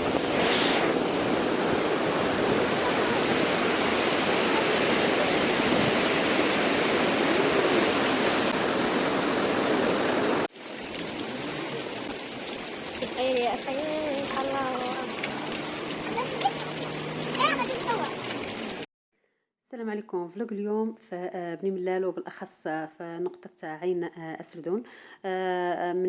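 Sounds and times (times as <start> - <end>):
water rushing down a cascade: 0.0 - 18.9
outdoor background: 0.0 - 21.4.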